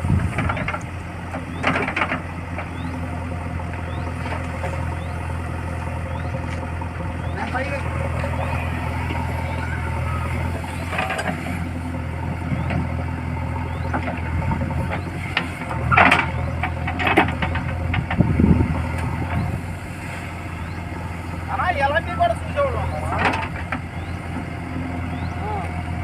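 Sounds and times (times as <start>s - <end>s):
heavy diesel engine idling: 0.0s - 26.0s.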